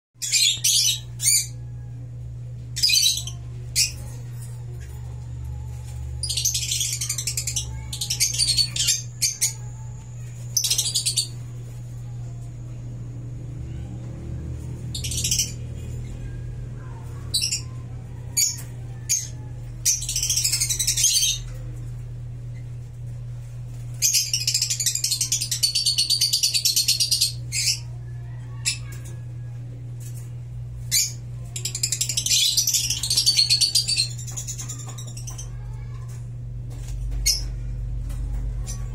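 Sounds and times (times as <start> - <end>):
steady low hum: 0.2 - 38.9.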